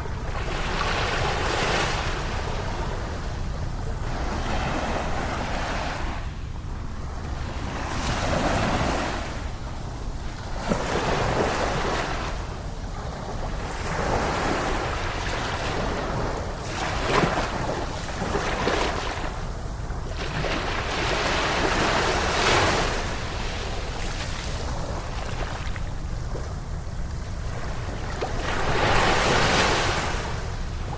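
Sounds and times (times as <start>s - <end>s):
ocean waves washing onto beach: 0.0s - 30.9s
wind rumble on microphone: 0.0s - 30.9s.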